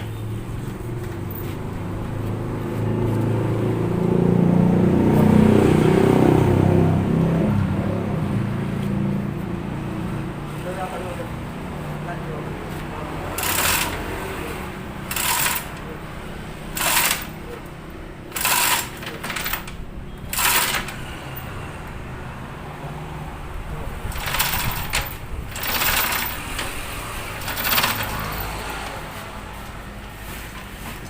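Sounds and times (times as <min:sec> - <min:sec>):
mechanical tool bursts: 0:13.4 - 0:14.2, 0:15.1 - 0:15.8, 0:16.8 - 0:17.4, 0:18.3 - 0:19.7, 0:20.3 - 0:21.0.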